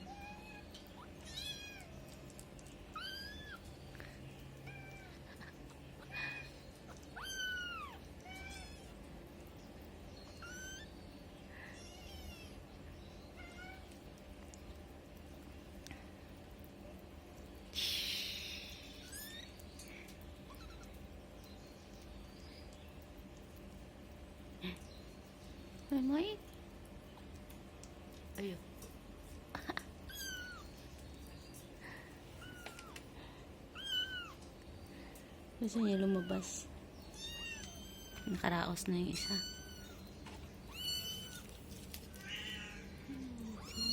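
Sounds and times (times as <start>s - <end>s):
cat meowing: 7.2s - 9.0s, 33.7s - 34.4s, 37.1s - 38.3s, 39.2s - 40.0s, 40.7s - 41.5s, 42.2s - 42.9s, 43.5s - 43.9s
kitten mewing: 42.2s - 43.9s.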